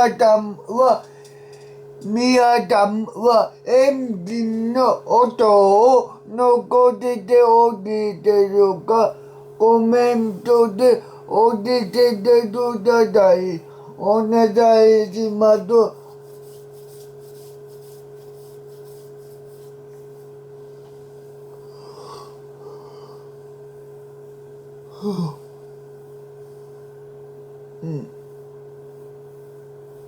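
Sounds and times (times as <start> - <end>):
constant higher tone: 0.0 - 16.4
steady background hum: 0.0 - 30.0.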